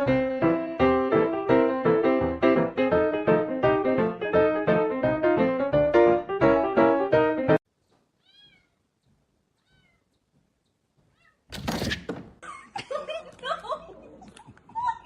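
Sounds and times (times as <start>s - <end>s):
piano music: 0.0s - 7.6s
cat meowing faintly: 8.2s - 8.8s, 9.6s - 10.1s, 11.1s - 11.5s.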